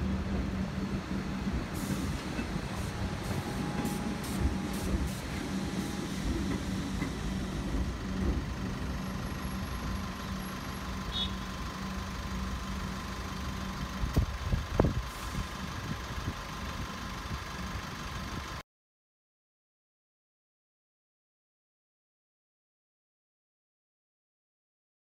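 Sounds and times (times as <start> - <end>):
electric train passing: 0.0 - 18.6.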